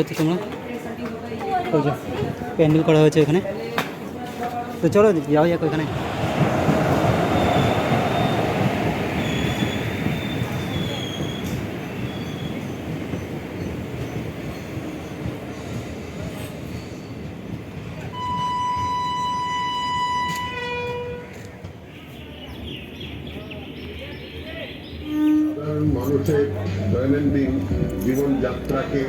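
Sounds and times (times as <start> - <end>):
train rail rumble: 2.0 - 29.0
wheel squeal: 9.2 - 12.7.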